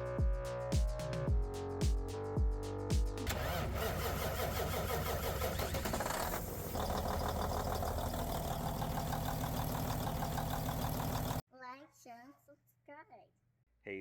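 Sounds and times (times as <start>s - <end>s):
small diesel engine running: 3.3s - 11.4s.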